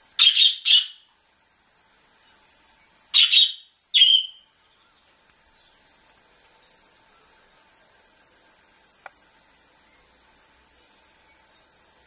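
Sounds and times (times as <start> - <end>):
cage bird harsh calls: 0.0 - 1.2, 3.0 - 5.9.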